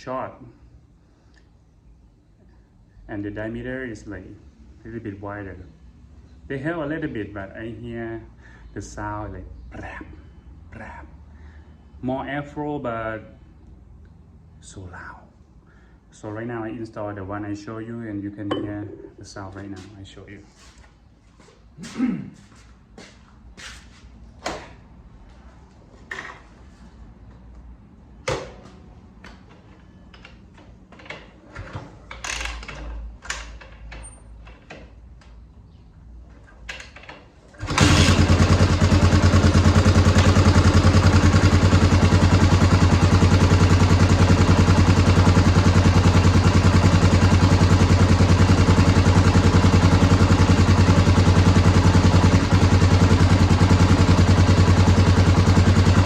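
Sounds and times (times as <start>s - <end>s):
motorcycle engine starting and running: 37.5s - 56.0s.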